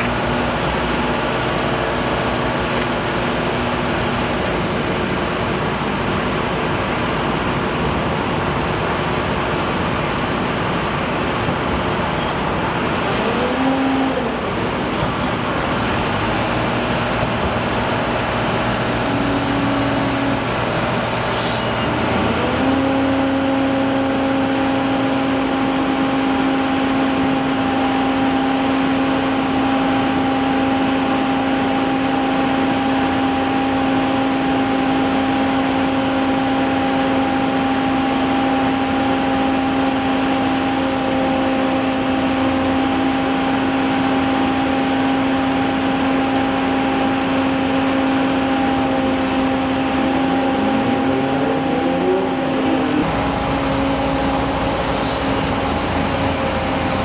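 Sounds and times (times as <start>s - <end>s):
machinery droning: 0.0s - 28.8s, 45.6s - 57.0s
motor humming: 47.2s - 57.0s.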